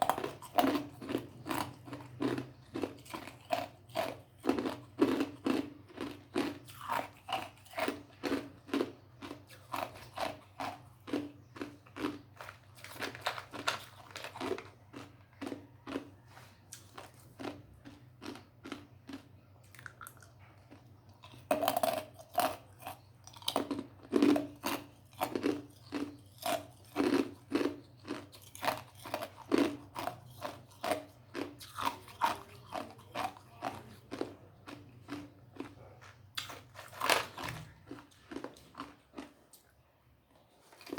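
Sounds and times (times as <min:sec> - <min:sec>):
ice crunching being chewed: 0:00.0 - 0:40.9.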